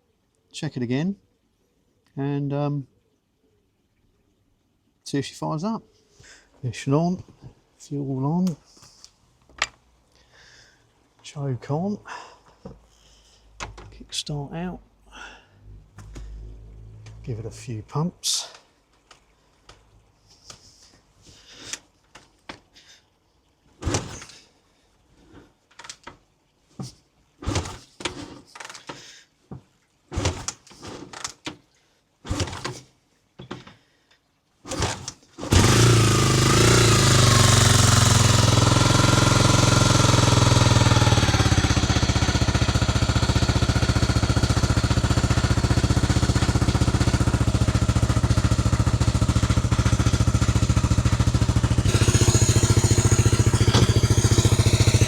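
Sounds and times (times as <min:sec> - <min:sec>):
motorcycle kick-start kicks: 0:23.8 - 0:24.4, 0:27.4 - 0:29.0, 0:30.2 - 0:31.6, 0:32.3 - 0:32.9, 0:34.7 - 0:55.0
motorcycle engine running: 0:35.5 - 0:55.0.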